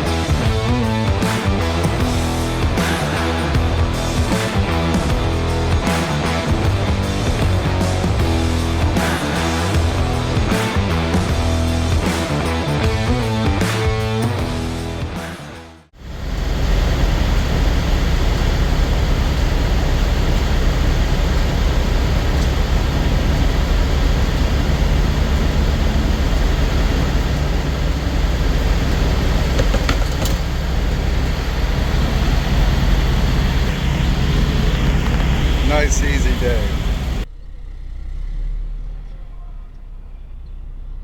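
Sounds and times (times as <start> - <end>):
truck engine drone: 0.0 - 41.0
tyre and road noise: 16.0 - 41.0.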